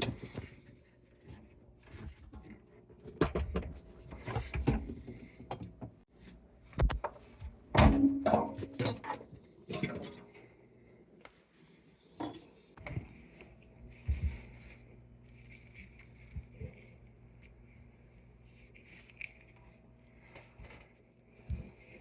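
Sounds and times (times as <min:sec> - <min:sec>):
tools and metal parts clanking: 0:07.8 - 0:10.2.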